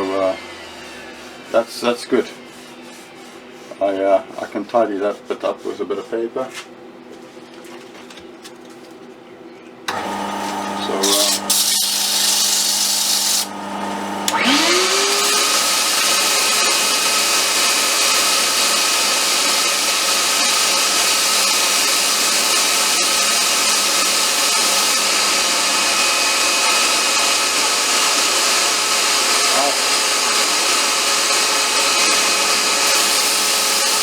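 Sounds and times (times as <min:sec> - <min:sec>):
lathe motor hum: 0:00.0 - 0:03.7, 0:09.9 - 0:34.0
wood rasping on lathe: 0:09.9 - 0:13.6, 0:14.3 - 0:34.0.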